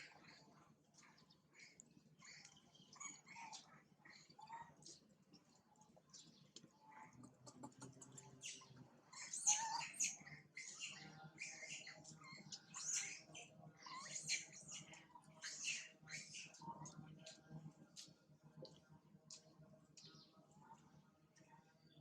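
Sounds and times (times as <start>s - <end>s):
baby monkey squeaking: 9.2s - 13.3s.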